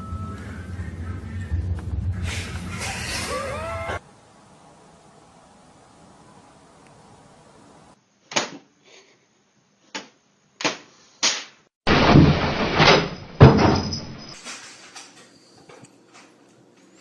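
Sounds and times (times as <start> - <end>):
clattering rattle: 12.1 - 17.0.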